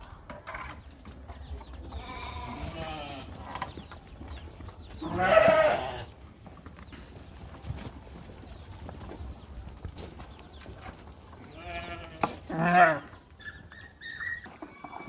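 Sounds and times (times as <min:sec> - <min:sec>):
sheep bleating: 0:02.0 - 0:03.4, 0:05.0 - 0:06.1, 0:11.5 - 0:13.1.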